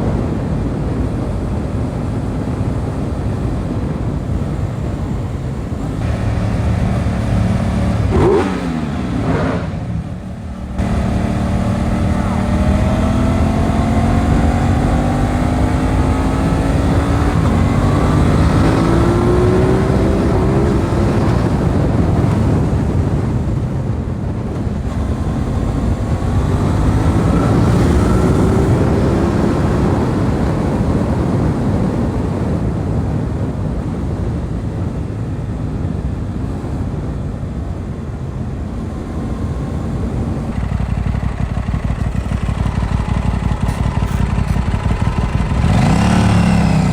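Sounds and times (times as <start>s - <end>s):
wind noise: 0.0s - 46.9s
motorcycle engine revving: 3.7s - 31.8s, 38.4s - 46.9s.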